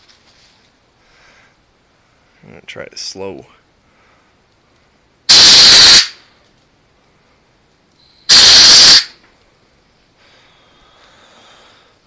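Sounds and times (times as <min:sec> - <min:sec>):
compressed air hiss: 0:05.3 - 0:06.2, 0:08.3 - 0:09.2.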